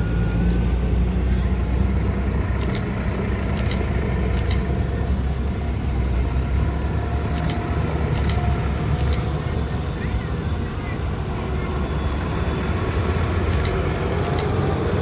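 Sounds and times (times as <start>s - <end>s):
tractor engines rumbling: 0.0s - 15.0s
short sharp clicks: 2.6s - 4.9s, 7.4s - 9.5s, 13.5s - 14.9s.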